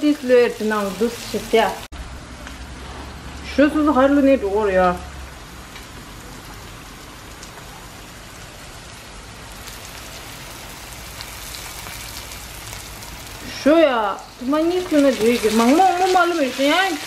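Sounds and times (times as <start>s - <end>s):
curry sizzling in a wok: 0.0s - 1.9s, 5.0s - 17.0s.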